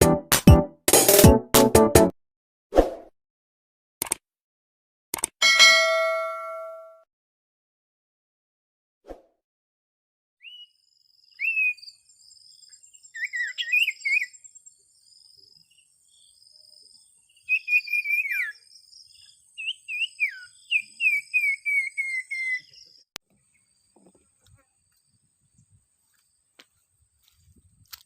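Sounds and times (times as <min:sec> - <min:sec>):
sharp click: 0:04.0 - 0:04.2, 0:05.1 - 0:05.4
bird calling in whistled phrases: 0:10.4 - 0:12.0, 0:13.0 - 0:14.5, 0:17.4 - 0:23.0.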